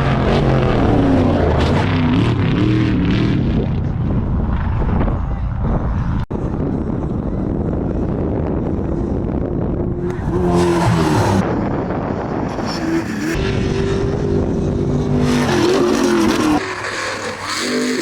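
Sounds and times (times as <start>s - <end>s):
tyre noise: 9.9s - 11.5s
car engine at high revs: 9.9s - 18.0s.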